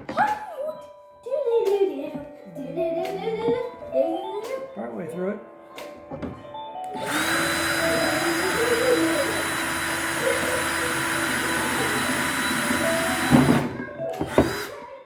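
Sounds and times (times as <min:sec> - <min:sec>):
rotary tool grinding screw: 0:07.0 - 0:14.8.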